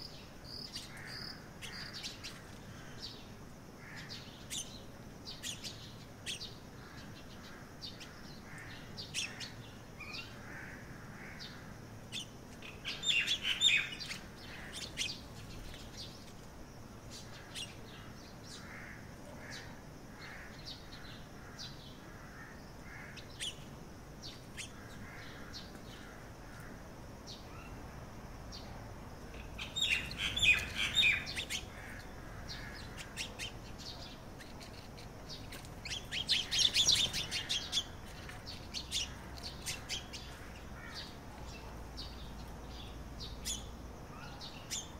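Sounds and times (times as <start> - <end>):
birds chirping: 0.0 - 27.8, 28.5 - 44.9.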